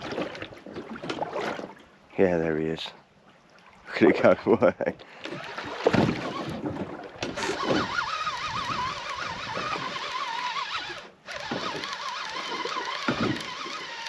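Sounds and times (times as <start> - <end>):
fishing reel squeaky whine: 7.3 - 14.0.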